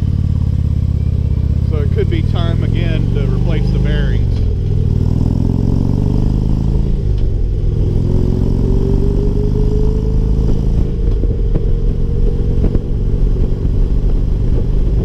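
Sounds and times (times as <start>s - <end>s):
motorcycle engine at road speed: 0.0s - 15.0s
singing wheel bearing whine: 0.3s - 1.9s.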